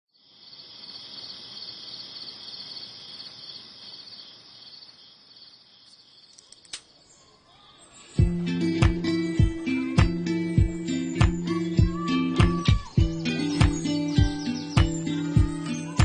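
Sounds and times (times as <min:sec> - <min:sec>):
insects chirping: 0:00.1 - 0:16.0
sharp click: 0:06.3 - 0:06.9
music with plucked notes and beat: 0:08.2 - 0:16.0.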